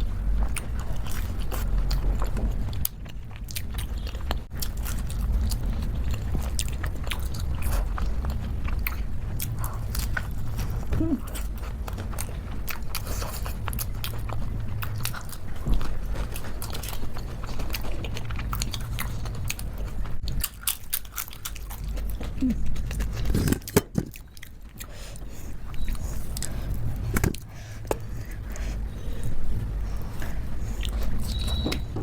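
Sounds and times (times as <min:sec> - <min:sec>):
chewing food close up: 0:00.0 - 0:32.0
steady low hum: 0:00.0 - 0:32.0.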